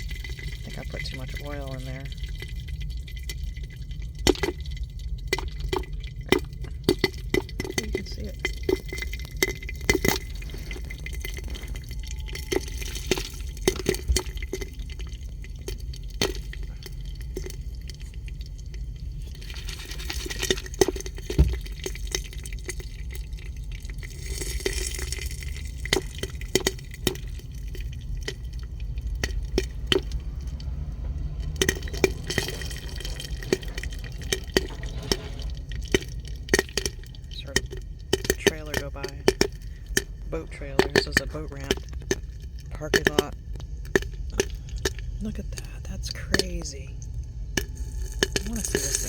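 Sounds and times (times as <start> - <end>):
popcorn popping in oil: 0.0 - 49.0.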